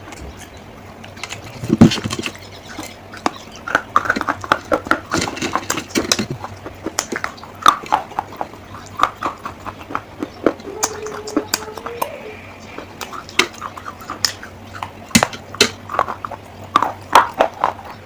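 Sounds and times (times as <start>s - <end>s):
baked clay crunching and cracking: 0.0s - 12.1s, 12.7s - 18.0s.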